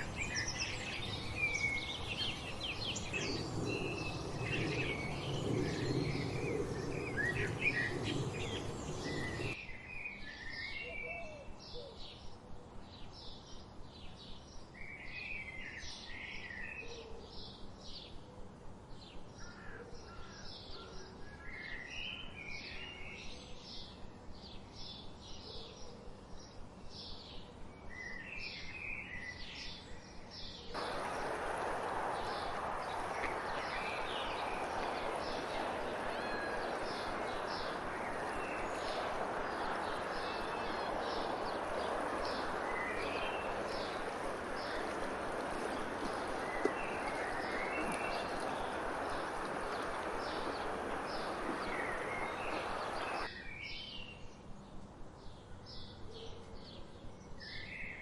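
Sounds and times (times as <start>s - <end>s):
birds singing and chirping: 0.0s - 9.6s, 30.8s - 54.0s.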